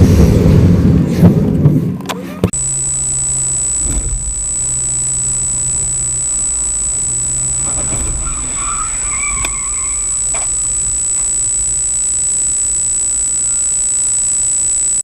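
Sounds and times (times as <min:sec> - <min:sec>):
car road and engine noise: 0:00.0 - 0:12.6
click: 0:02.0 - 0:08.3, 0:09.4 - 0:15.0
faint wavering squeals: 0:02.6 - 0:15.0
thin high-pitched whine: 0:02.6 - 0:15.0.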